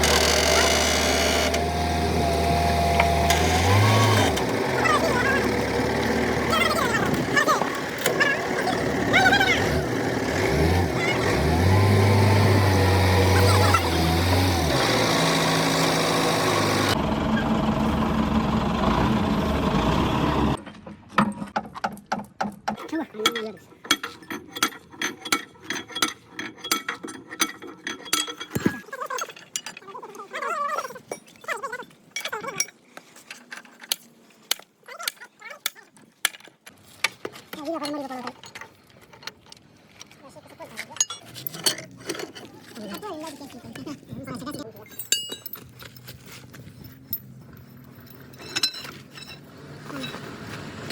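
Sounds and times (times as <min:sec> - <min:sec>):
heavy engine running: 0:00.0 - 0:20.6
voices: 0:03.0 - 0:12.0, 0:13.2 - 0:14.5
metal tools clinking: 0:23.1 - 0:34.0, 0:40.8 - 0:50.4.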